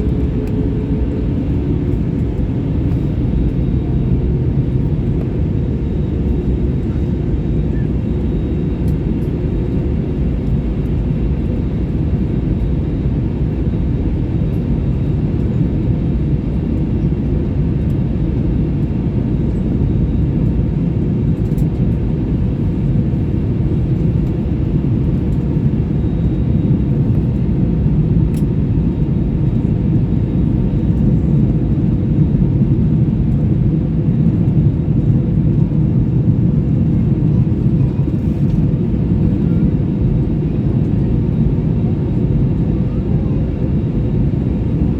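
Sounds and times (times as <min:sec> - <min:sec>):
jet engines roaring: 0:00.0 - 0:13.4.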